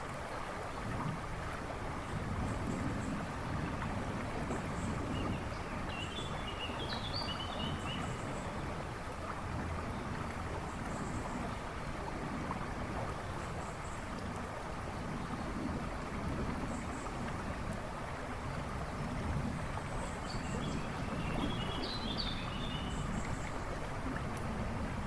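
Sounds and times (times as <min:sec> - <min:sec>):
river rushing and babbling: 0:00.0 - 0:25.0
songbird chirping: 0:20.3 - 0:23.4.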